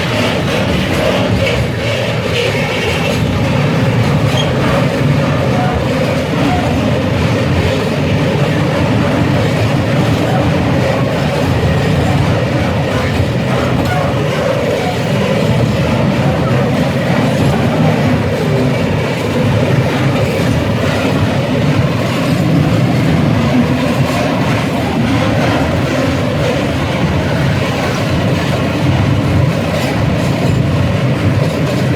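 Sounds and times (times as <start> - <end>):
freight train wheels rumbling: 0.0 - 31.9.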